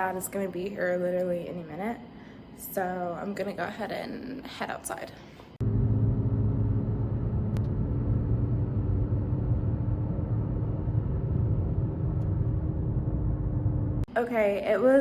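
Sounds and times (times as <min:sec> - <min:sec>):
car engine running: 0:05.6 - 0:14.1.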